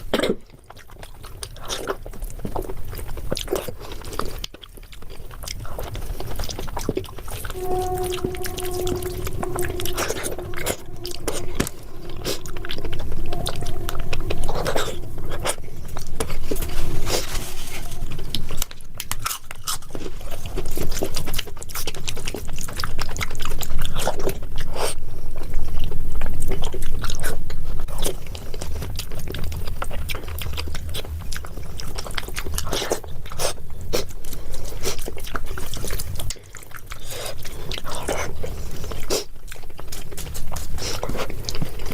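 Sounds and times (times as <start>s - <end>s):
person chewing food: 27.9s - 41.9s.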